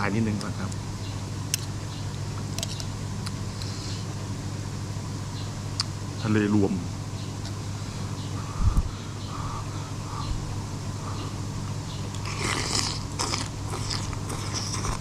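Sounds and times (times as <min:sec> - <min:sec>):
person chewing food: 0:11.1 - 0:15.0.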